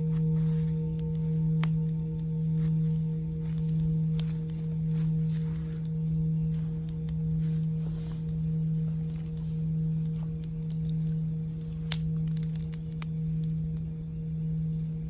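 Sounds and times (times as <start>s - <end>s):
campfire crackling: 0.0s - 15.0s
singing bowl ringing: 0.0s - 15.0s.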